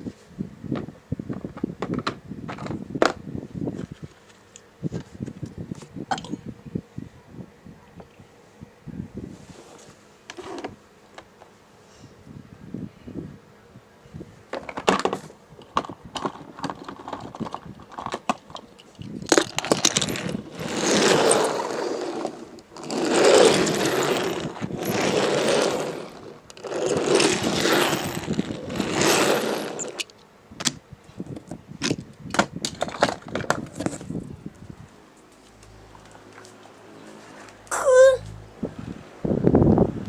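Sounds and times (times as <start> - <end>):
ice crunching: 19.3 - 30.0.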